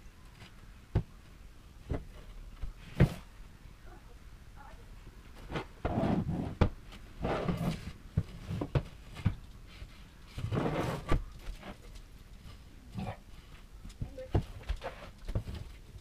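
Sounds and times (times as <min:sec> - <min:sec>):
scraping and rustling: 0:05.3 - 0:16.0.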